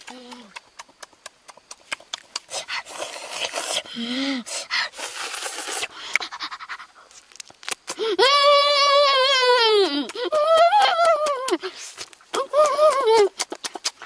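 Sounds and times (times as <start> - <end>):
boy panting heavily: 2.3 - 7.1, 7.9 - 8.3, 9.6 - 14.0
boy high-pitched cry: 8.0 - 11.8, 12.4 - 13.4.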